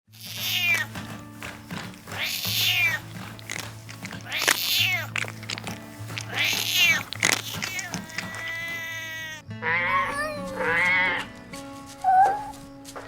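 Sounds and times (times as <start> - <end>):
soft background music: 0.2 - 13.0
kitten meowing: 0.4 - 0.9, 2.2 - 3.1, 6.2 - 9.2.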